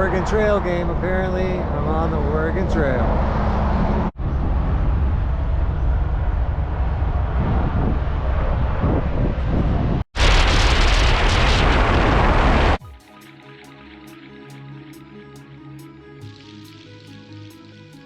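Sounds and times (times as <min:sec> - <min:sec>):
pickup truck road and engine rumble: 0:00.0 - 0:10.0
rush of wind and road noise: 0:00.0 - 0:12.8.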